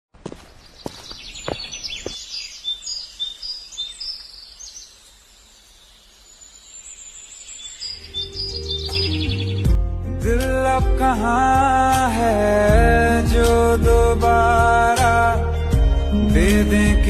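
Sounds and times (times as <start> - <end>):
small birds chirping: 0.2 - 10.2
music: 8.1 - 17.0.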